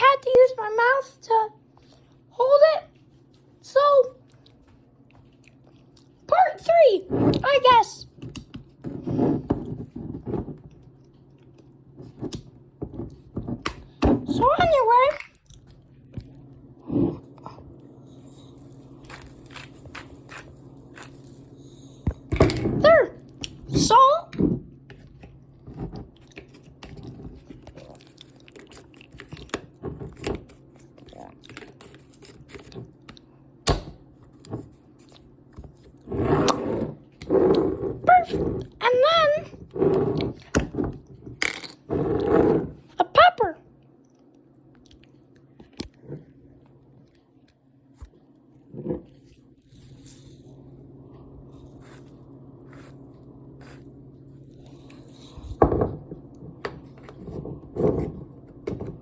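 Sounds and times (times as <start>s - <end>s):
popcorn crunching and rustling: 15.2s - 22.4s, 25.1s - 33.4s, 51.4s - 55.6s
pepper grinder rasping: 17.9s - 22.8s, 49.6s - 50.7s, 51.5s - 55.6s.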